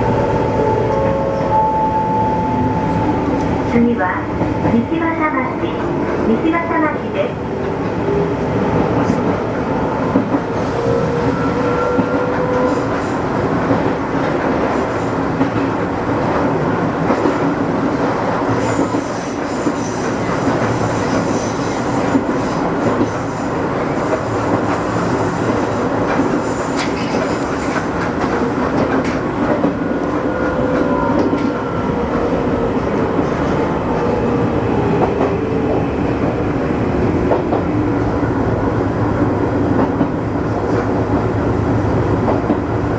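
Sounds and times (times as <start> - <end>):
train wheels rumbling on rails: 2.7 - 42.9.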